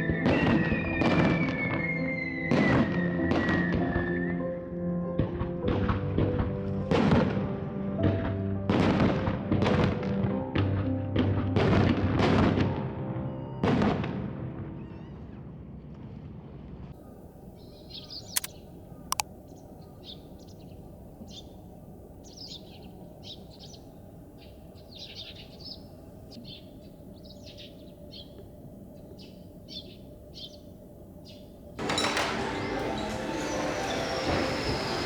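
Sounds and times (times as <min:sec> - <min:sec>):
small birds chirping: 0:17.0 - 0:28.4, 0:29.0 - 0:31.6
sharp clicks: 0:18.3 - 0:19.3
loud noisy sound: 0:31.8 - 0:35.0.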